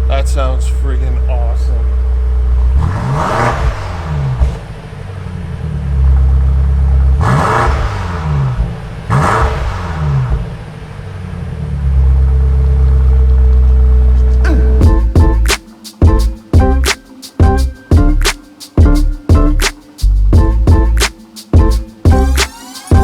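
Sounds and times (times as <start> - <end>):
car engine idling: 0.0 - 18.0
engine throttle blips: 0.0 - 18.3.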